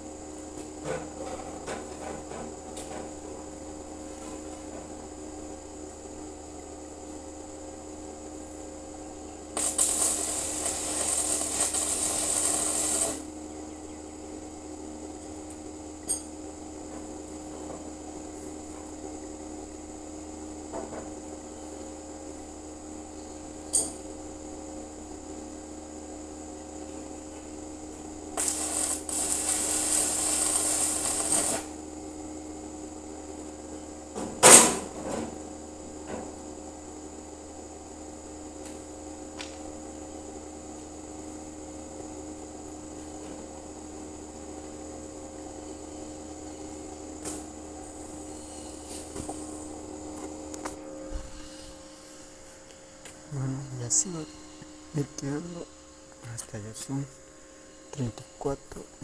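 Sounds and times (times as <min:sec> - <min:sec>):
welding machine hum: 0:08.4 - 0:13.4, 0:26.3 - 0:32.2
welding arc hissing and crackling: 0:09.4 - 0:13.4, 0:28.2 - 0:31.8.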